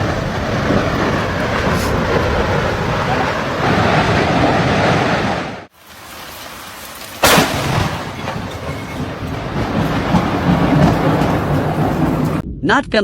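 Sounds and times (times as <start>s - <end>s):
thunder crack and rumble: 0.0s - 6.2s, 7.2s - 12.6s.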